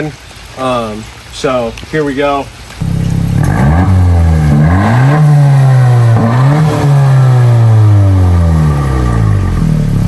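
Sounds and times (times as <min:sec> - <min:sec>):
car engine revving: 0:02.8 - 0:10.0.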